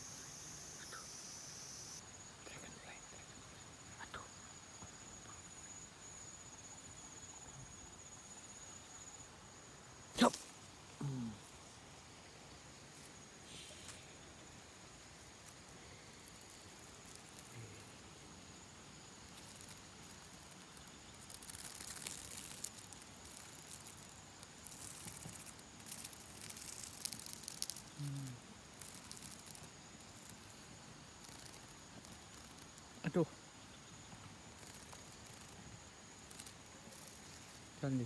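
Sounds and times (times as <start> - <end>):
high insect drone: 0.0 - 38.0
brief low vocal sounds: 11.0 - 11.4, 28.0 - 28.4
rustling: 19.3 - 30.6.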